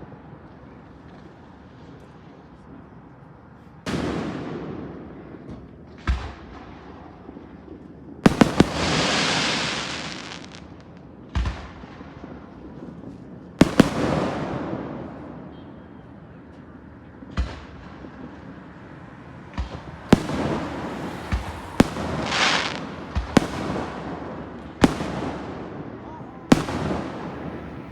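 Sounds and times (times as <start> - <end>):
firework booms: 8.2 - 13.0, 13.6 - 15.5, 19.5 - 27.9
hissing crackle of bursting shells: 8.3 - 10.8.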